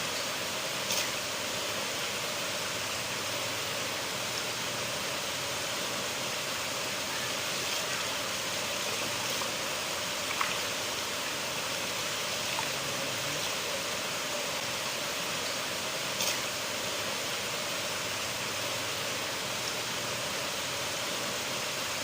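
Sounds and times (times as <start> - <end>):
river water flowing: 0.0 - 22.0
small water splashes: 7.1 - 13.9.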